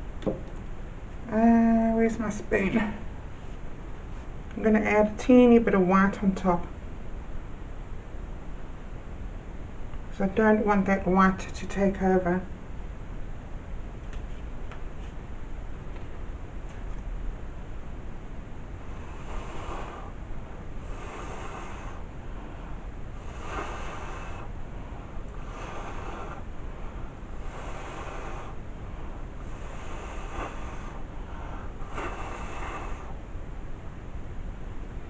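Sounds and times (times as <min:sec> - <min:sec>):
low background hiss: 0:00.0 - 0:35.0
breathy bursts of blown air: 0:18.8 - 0:20.2, 0:20.8 - 0:33.2.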